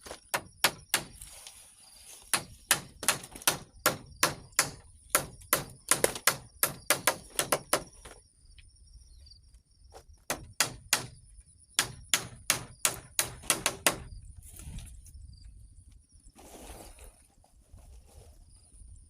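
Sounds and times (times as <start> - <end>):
rustle: 1.2 - 2.3.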